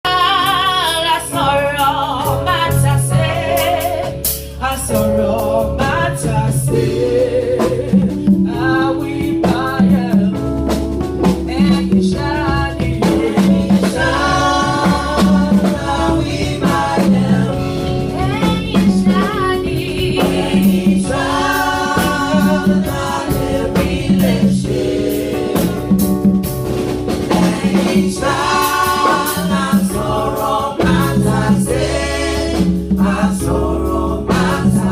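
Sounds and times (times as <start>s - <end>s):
choir singing gospel music: 0.1s - 34.9s
steady beat: 8.3s - 34.9s.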